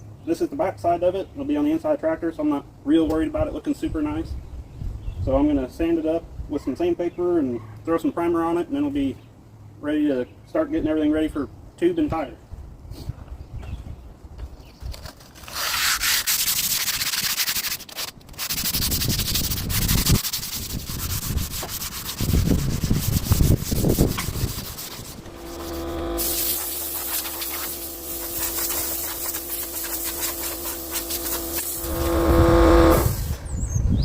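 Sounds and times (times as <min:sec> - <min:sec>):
sandpaper scraping on steel: 0:15.3 - 0:33.4
steady tonal hum: 0:23.4 - 0:33.4.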